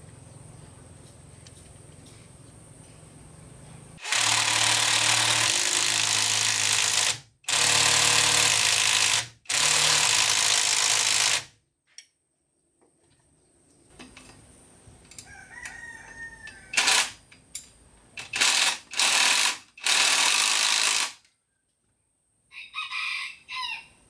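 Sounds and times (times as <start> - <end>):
power tool running: 4.0 - 11.5, 16.8 - 17.2, 18.2 - 21.2.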